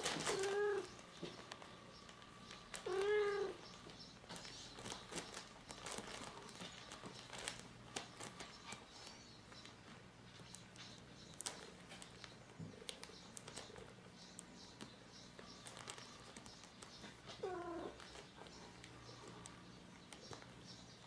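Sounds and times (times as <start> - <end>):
cat meowing: 2.8 - 3.6, 17.4 - 18.0.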